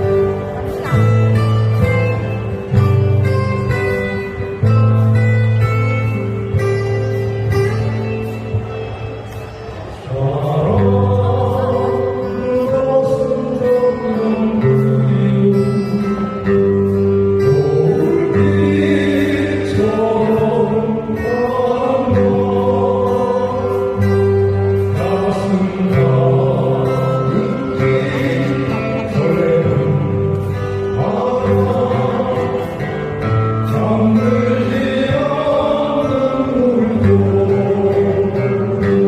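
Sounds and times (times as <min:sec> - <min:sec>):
acoustic guitars: 0:00.0 - 0:39.0
bass notes: 0:00.0 - 0:39.0
person singing: 0:09.9 - 0:39.0.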